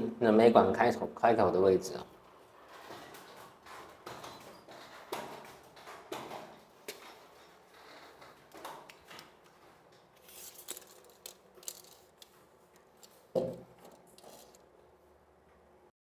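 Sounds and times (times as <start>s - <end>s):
small tool clicks and scrapes: 10.2s - 14.6s.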